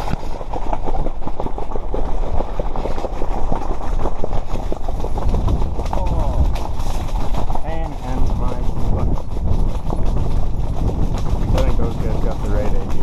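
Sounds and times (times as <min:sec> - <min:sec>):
wind buffeting microphone: 0:01.9 - 0:13.0
fast rattle of clicks: 0:02.7 - 0:13.0.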